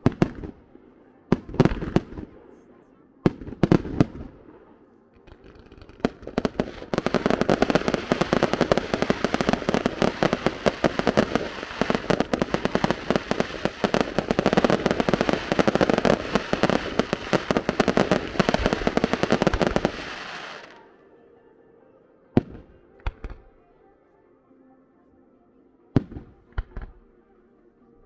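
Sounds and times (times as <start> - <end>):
fireworks crackling: 0.0 - 0.7, 1.3 - 2.5, 3.3 - 4.6, 5.2 - 20.8.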